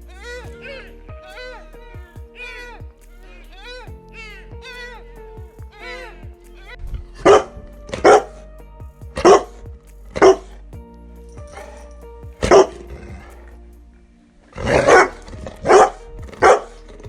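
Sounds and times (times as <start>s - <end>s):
background music: 0.0s - 17.0s
dog barking: 7.2s - 8.4s, 9.2s - 9.5s, 10.2s - 10.6s, 11.5s - 13.3s, 14.6s - 16.8s.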